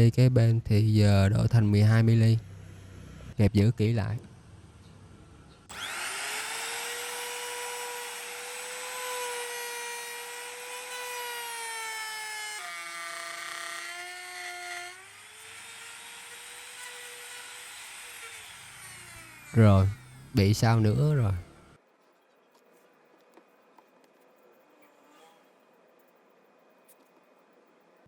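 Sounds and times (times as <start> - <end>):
electric wood router whine: 5.7 - 20.4, 21.0 - 21.8.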